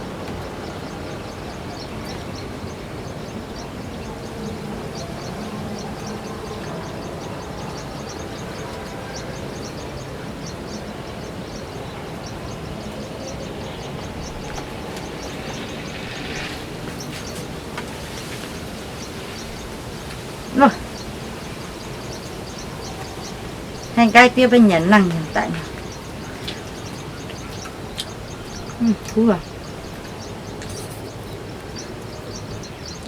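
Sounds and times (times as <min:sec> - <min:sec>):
engine-like rumble: 0:11.8 - 0:33.0.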